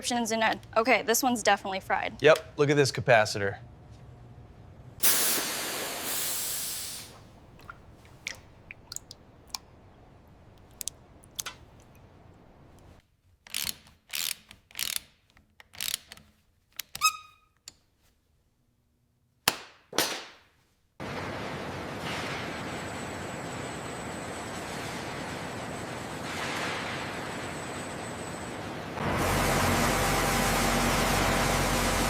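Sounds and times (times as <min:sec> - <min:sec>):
hiss: 0:05.0 - 0:07.2
short noisy bursts: 0:05.0 - 0:07.3
small clicks: 0:10.5 - 0:12.1.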